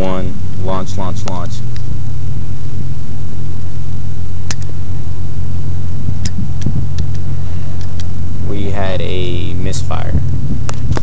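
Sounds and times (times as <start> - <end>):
low engine-like rumble: 0.0 - 11.0
short sharp clicks: 4.5 - 4.7.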